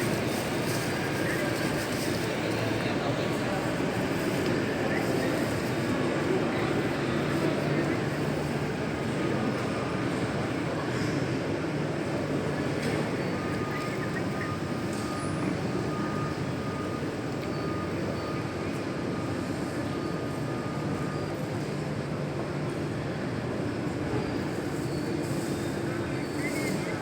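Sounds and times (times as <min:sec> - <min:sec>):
jet engines humming: 0:00.0 - 0:17.3.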